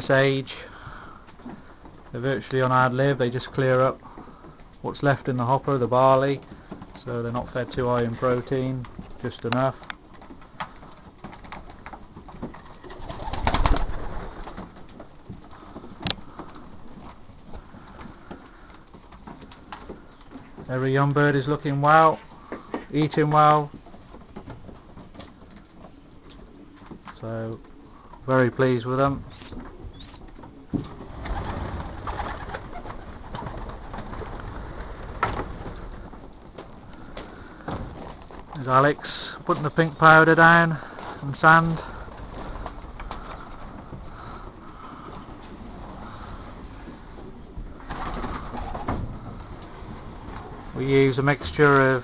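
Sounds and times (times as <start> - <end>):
noisy wing flurry: 7.7 - 20.6, 29.2 - 52.0
small scattered clicks: 7.8 - 12.8, 14.4 - 20.7
pigeons cooing: 29.1 - 38.0, 41.8 - 50.8.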